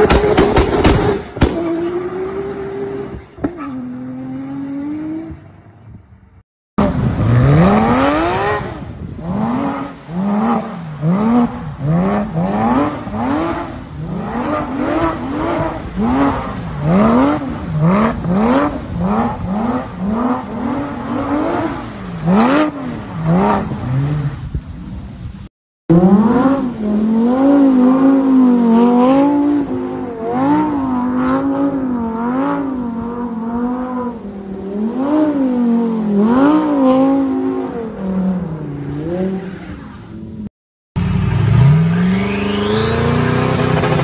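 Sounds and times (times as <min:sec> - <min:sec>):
car driving away: 0:41.0 - 0:44.0.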